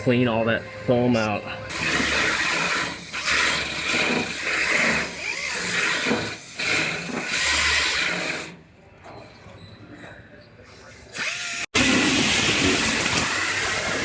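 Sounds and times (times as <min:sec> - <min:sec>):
power wire wheel scrubbing rust: 0:01.7 - 0:08.6, 0:11.2 - 0:14.0.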